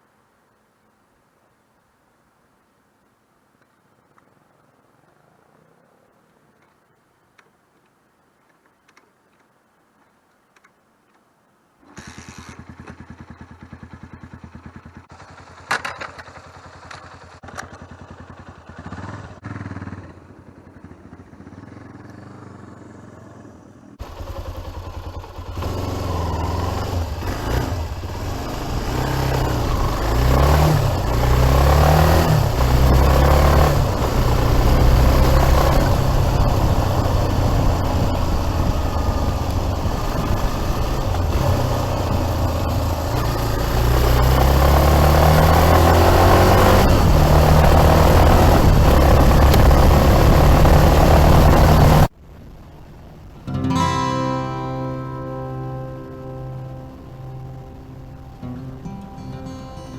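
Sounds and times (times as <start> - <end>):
motorcycle engine: 11.8 - 52.2, 54.7 - 59.1.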